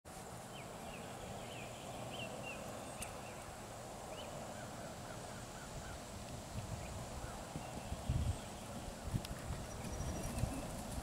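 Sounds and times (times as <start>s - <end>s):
bird chirps: 9.6s - 10.8s.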